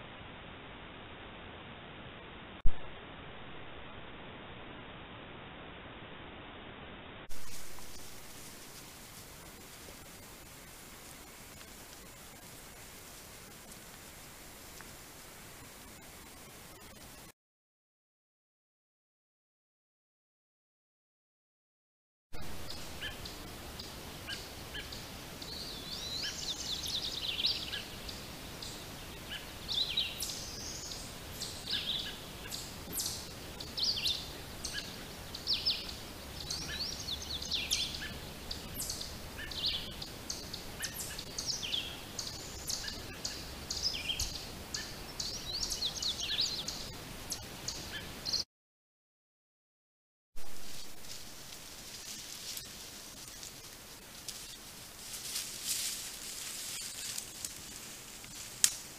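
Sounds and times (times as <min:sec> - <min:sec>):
faint steady hiss: 0:00.0 - 0:17.3, 0:22.4 - 0:48.4, 0:50.4 - 0:58.9
songbirds singing: 0:22.4 - 0:48.4.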